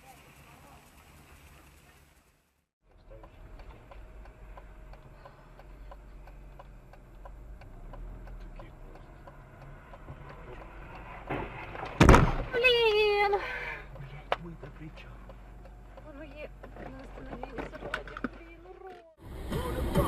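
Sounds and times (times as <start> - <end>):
low engine and road rumble: 0.0 - 20.0
indicator relay ticking: 3.1 - 11.1.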